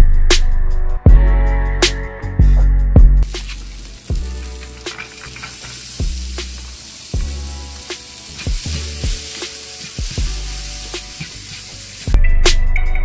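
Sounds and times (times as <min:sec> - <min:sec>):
background music with beat: 0:00.0 - 0:13.0
pepper sizzling in oil: 0:03.2 - 0:12.2
spatula stirring: 0:03.2 - 0:12.2.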